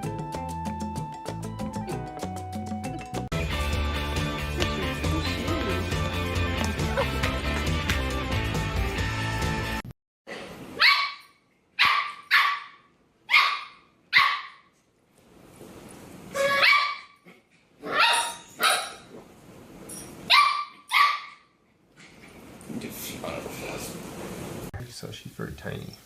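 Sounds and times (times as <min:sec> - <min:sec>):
dog barking: 0:10.8 - 0:14.7, 0:16.4 - 0:17.2, 0:17.8 - 0:19.1, 0:20.3 - 0:21.5.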